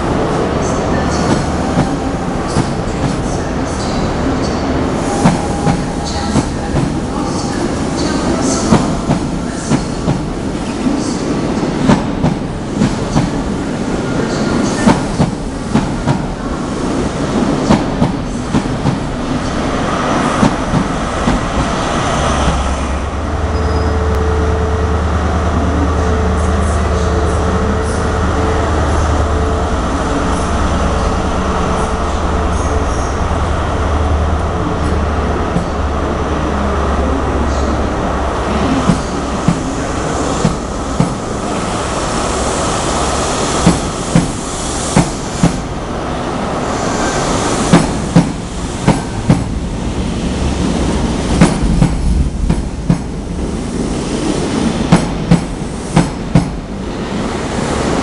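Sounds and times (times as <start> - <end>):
low diesel engine drone: 21.8 - 43.5
wheel squeal: 23.5 - 24.0.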